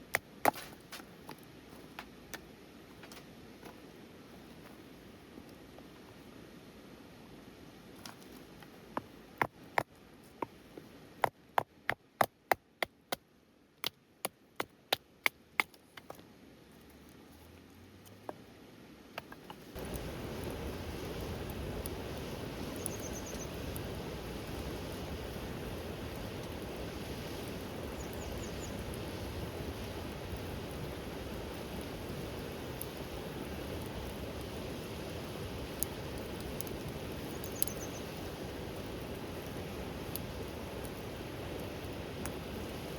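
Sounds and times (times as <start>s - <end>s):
firewood being chopped: 0.0s - 3.8s, 11.2s - 13.2s, 19.2s - 19.8s
rain rushing: 19.6s - 42.9s.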